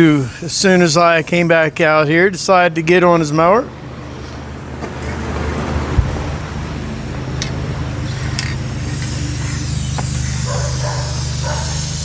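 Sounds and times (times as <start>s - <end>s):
riding lawn mower engine: 0.0s - 1.8s, 3.4s - 12.0s
spray paint can hissing: 7.4s - 12.0s.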